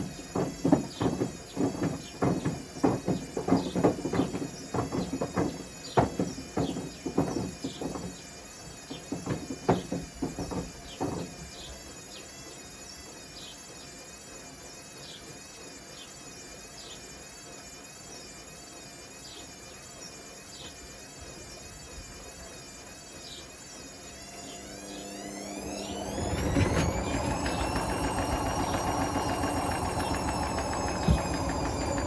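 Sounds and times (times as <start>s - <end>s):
bricks knocking in drum: 0.0s - 8.2s, 9.0s - 11.4s
washing machine motor whine: 0.0s - 32.0s.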